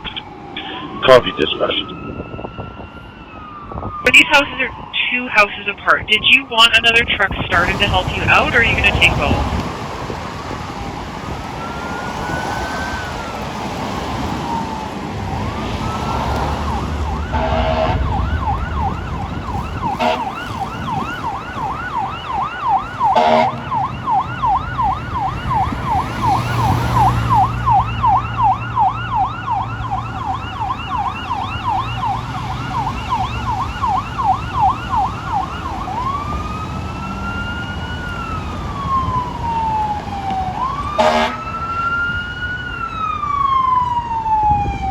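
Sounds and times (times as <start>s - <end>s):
fire engine siren: 0.0s - 44.9s
truck engine rumble: 0.0s - 44.9s
short horn blasts: 17.3s - 18.0s, 20.0s - 20.3s, 23.2s - 23.6s, 41.0s - 41.4s.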